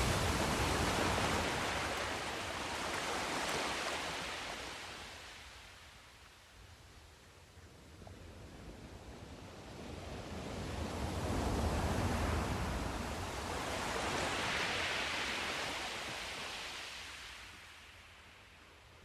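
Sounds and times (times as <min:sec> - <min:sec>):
sea wave breaking: 0:00.0 - 0:05.1
wave washing up shore: 0:00.0 - 0:05.6, 0:10.3 - 0:17.7.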